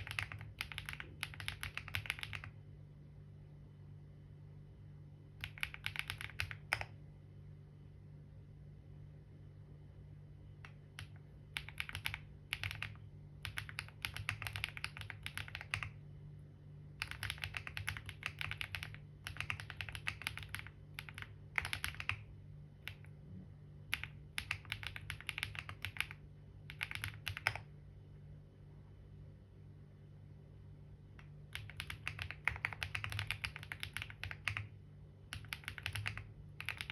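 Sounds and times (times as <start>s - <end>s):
keyboard key clicks: 0.0s - 2.5s, 5.4s - 7.0s, 10.6s - 15.9s, 31.2s - 34.7s, 35.3s - 36.9s
steady low hum: 0.0s - 36.9s.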